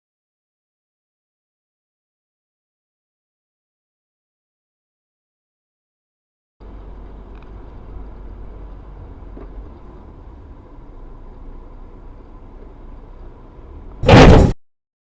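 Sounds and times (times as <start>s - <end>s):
car driving rumble: 6.6s - 14.6s.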